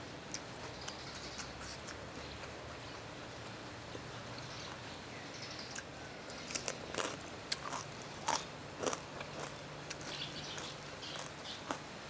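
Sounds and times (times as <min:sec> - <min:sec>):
crunching pork rinds: 0:05.7 - 0:12.0.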